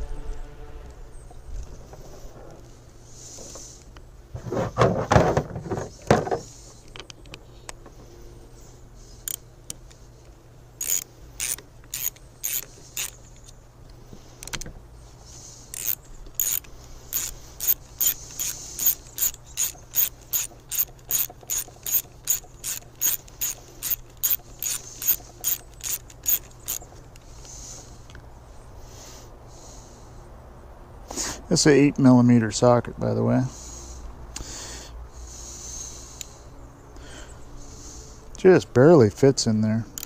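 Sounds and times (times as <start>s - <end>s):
ratchet wrench clicking: 10.8s - 13.5s, 15.7s - 27.3s.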